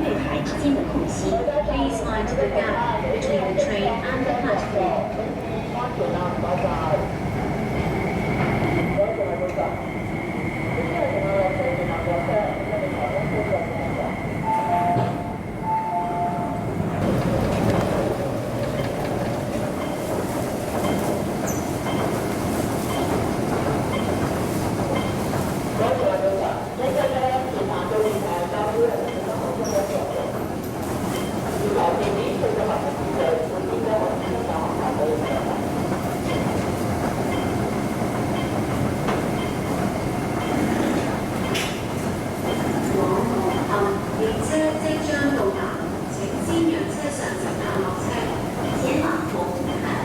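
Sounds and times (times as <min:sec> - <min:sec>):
electric train rumble and whine: 0:00.0 - 0:28.0
electric train rail rumble: 0:06.7 - 0:50.0.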